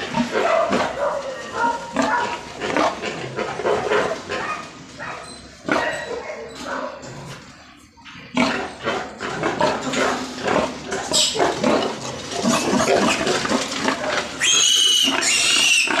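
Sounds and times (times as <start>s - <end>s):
loud high-pitched pig squeals: 0.0s - 7.2s, 11.0s - 16.0s
pigs grunting and squealing: 0.0s - 16.0s.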